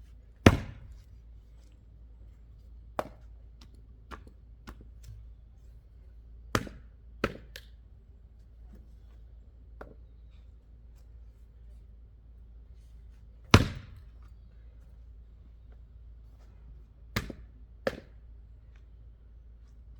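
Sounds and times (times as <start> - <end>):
axe chopping wood: 0.4 - 1.0, 3.0 - 3.3, 6.5 - 7.7, 13.5 - 14.2, 17.2 - 18.2.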